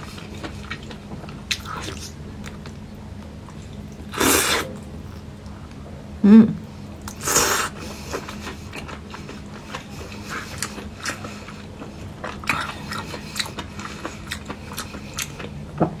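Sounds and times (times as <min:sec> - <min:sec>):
biting and chewing food: 0:07.0 - 0:15.7.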